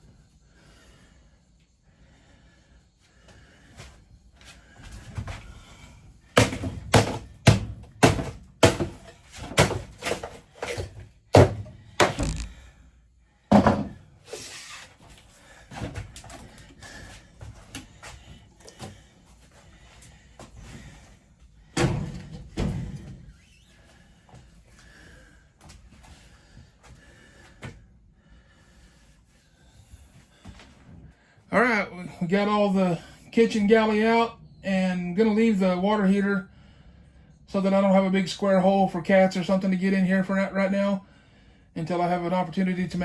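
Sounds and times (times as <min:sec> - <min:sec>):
bangs on wooden cabinetry: 0:06.4 - 0:10.2, 0:11.3 - 0:12.6, 0:13.5 - 0:14.0.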